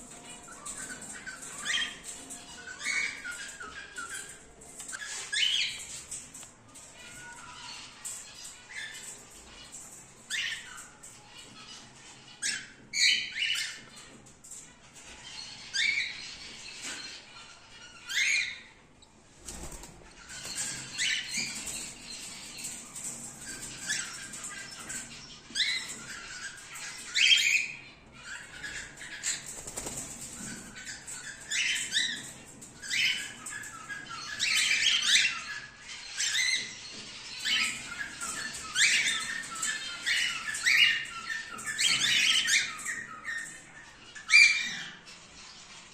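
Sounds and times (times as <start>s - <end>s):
cockatiels chirping and squawking: 0.0s - 18.8s, 19.5s - 45.9s.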